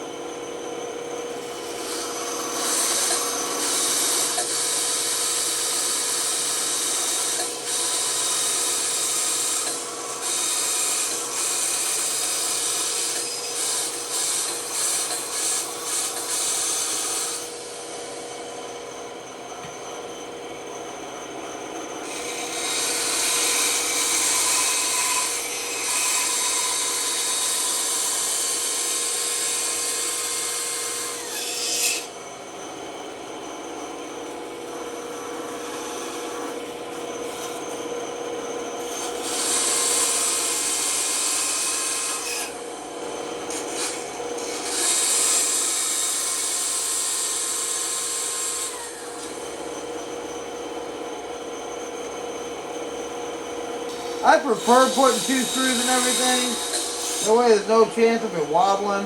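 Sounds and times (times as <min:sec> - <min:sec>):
saw blade cutting wood: 0:01.4 - 0:17.8, 0:22.0 - 0:32.1, 0:38.9 - 0:42.6, 0:43.5 - 0:49.4, 0:53.9 - 0:59.0
bandsaw humming: 0:01.4 - 0:18.7, 0:21.8 - 0:32.2, 0:34.3 - 0:50.4, 0:53.8 - 0:59.0.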